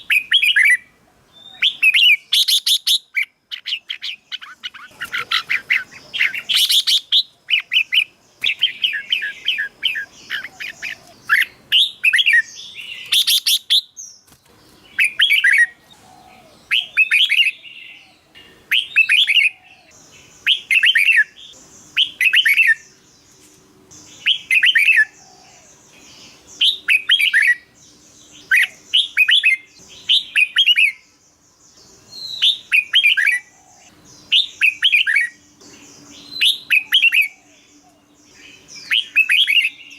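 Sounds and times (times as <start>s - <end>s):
bird singing whistled phrases: 0.0s - 14.0s, 15.0s - 18.1s, 18.7s - 22.9s, 24.2s - 25.2s, 26.6s - 27.7s, 28.4s - 31.1s, 32.2s - 33.5s, 34.3s - 35.4s, 36.2s - 37.4s, 38.8s - 39.9s
steady high hiss: 0.0s - 39.9s.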